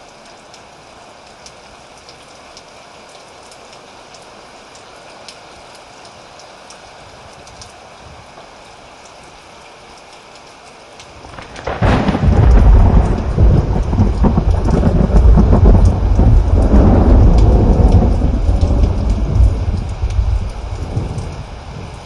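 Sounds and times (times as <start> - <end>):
rain falling: 0.0 - 22.0
deep rolling thunder: 11.3 - 21.9.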